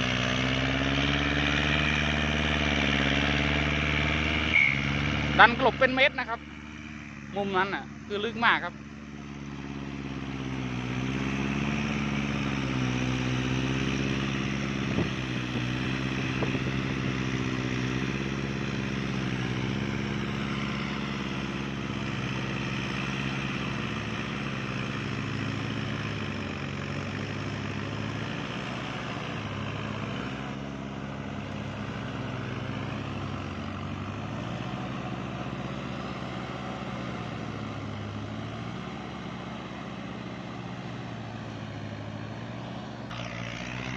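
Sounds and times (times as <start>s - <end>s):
tractor diesel engine under load: 0.0s - 43.9s.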